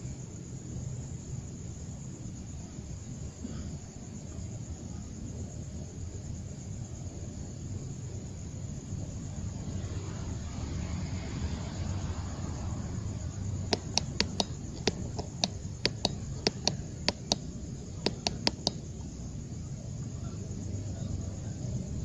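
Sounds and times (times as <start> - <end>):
sharp clicks or taps: 13.7 - 18.9.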